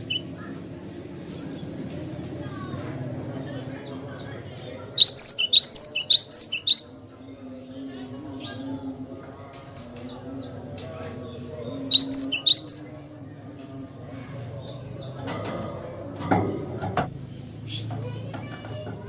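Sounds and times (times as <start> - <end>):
bird chirping: 0.0 - 0.4, 3.7 - 7.6, 9.8 - 13.0
low background murmur: 0.0 - 19.0.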